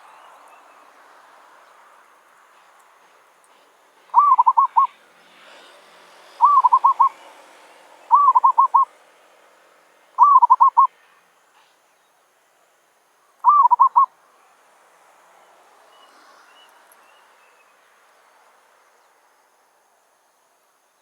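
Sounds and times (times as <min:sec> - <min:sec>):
dove cooing: 0:04.1 - 0:05.0, 0:06.4 - 0:07.2, 0:08.1 - 0:08.9, 0:10.2 - 0:10.9, 0:13.4 - 0:14.1.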